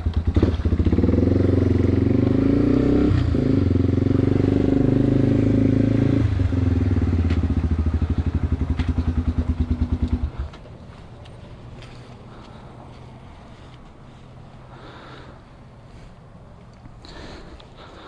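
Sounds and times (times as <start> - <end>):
motorcycle engine idling: 0.0 - 1.8, 6.4 - 12.9.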